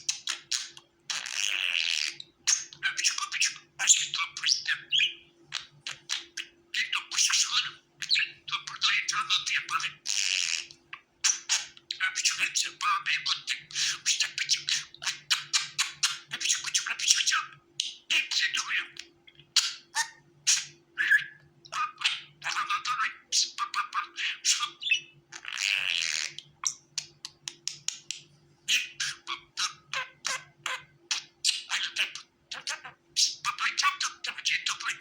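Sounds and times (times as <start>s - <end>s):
budgerigars chattering: 28.7s - 35.0s.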